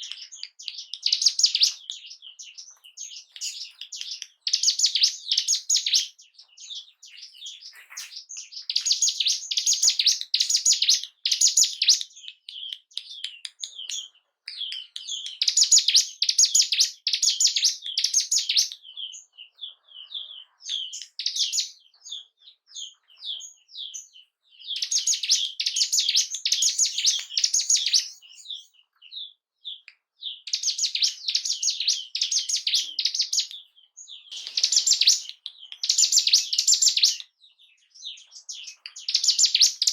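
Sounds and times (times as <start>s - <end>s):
single bird chirps: 0.0s - 39.9s
bird song fast high bursts: 34.3s - 37.0s.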